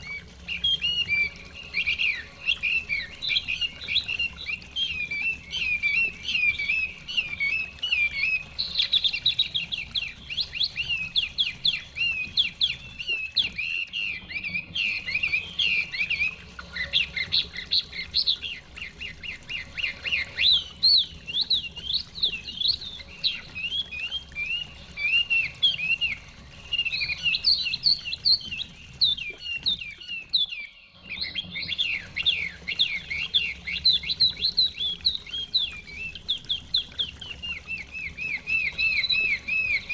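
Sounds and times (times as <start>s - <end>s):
bird singing whistled phrases: 0.0s - 39.9s.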